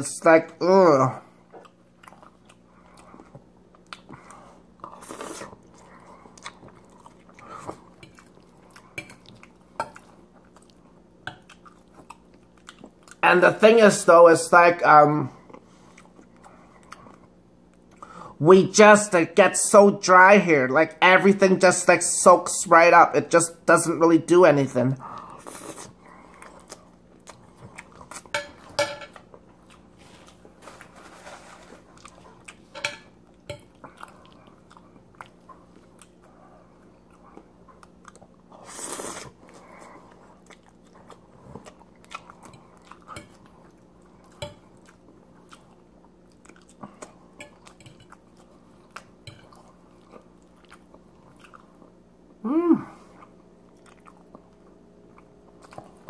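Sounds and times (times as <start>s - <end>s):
person humming: 52.4s - 53.1s.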